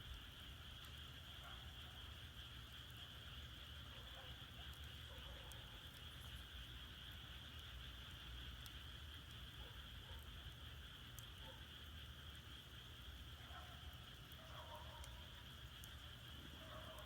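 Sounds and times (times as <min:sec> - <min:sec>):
frogs trilling: 0:00.0 - 0:17.0
firewood crackling: 0:02.2 - 0:09.6.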